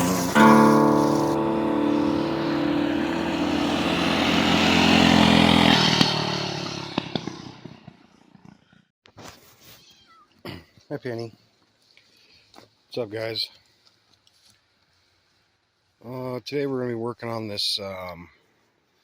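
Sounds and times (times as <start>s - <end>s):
rising hiss: 0.0s - 6.8s
motorcycle engine running: 0.0s - 8.0s.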